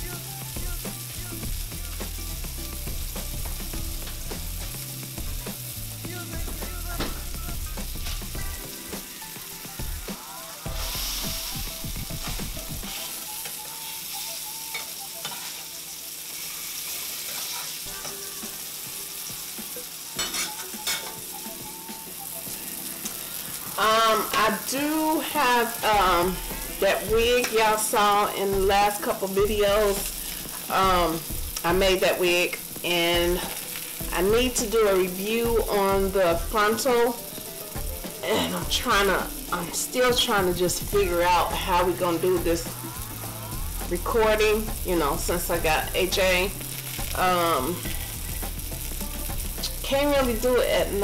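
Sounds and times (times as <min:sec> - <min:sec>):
sausage patties sizzling in a pan: 0:00.0 - 0:51.0
spatula scraping a pan: 0:10.7 - 0:19.5.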